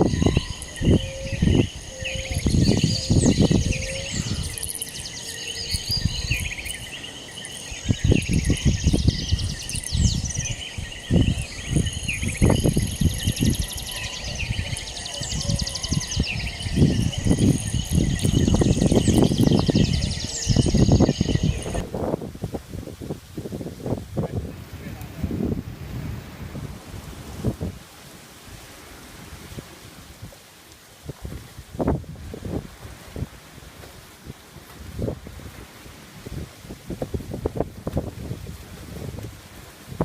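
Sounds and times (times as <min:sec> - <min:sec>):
insects trilling: 0:00.0 - 0:21.8
birds chirping: 0:00.0 - 0:21.9
wind buffeting microphone: 0:00.0 - 0:27.9, 0:31.0 - 0:40.0.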